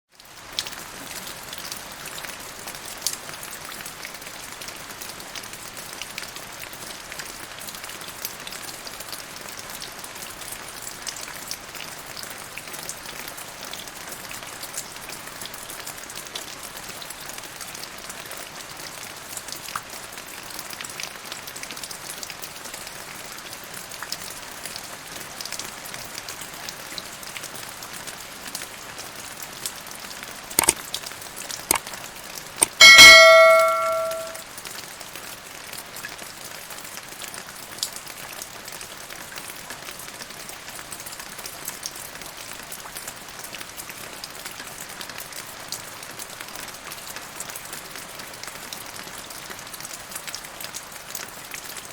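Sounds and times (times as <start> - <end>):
raindrops ticking on surfaces: 0.1 - 24.9
steady rain falling: 0.1 - 30.2, 35.1 - 51.9.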